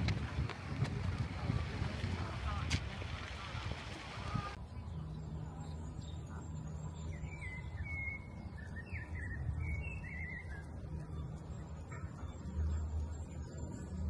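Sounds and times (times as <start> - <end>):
steady low rumble: 0.0 - 14.0
songbird warbling chirps: 4.6 - 14.0.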